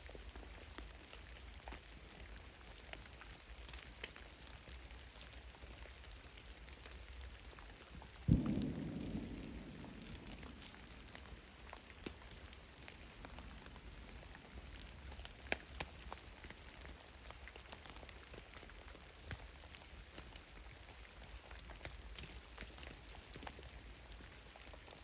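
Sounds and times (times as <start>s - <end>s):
meltwater dripping: 0.2s - 25.0s.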